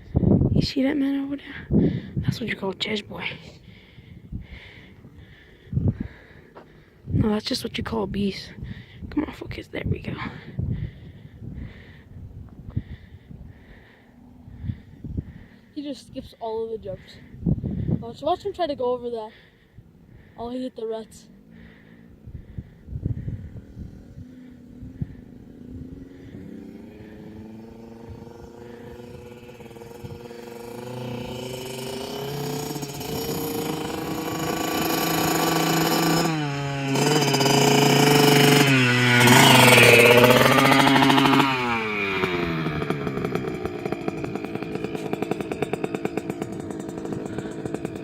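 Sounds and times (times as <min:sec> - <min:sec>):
dirt bike engine revving: 0:21.2 - 0:48.0.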